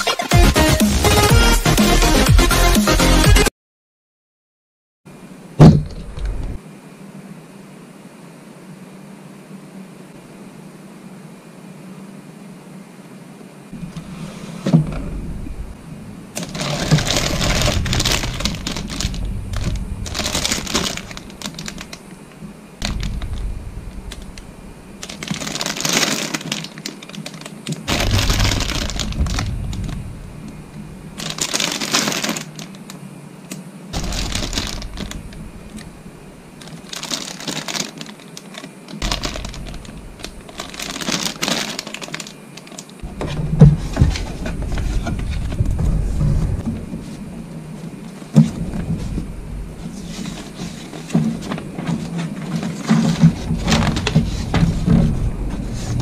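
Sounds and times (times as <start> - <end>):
plastic packaging crinkling: 16.4 - 33.0, 34.0 - 56.0.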